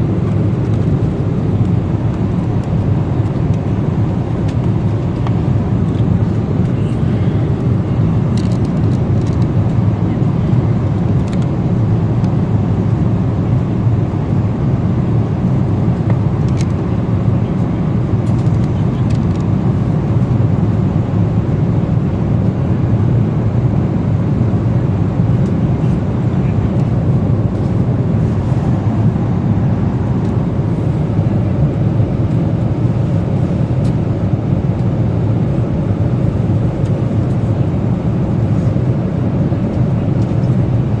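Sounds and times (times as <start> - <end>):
airliner cabin engine roar: 0.0 - 41.0.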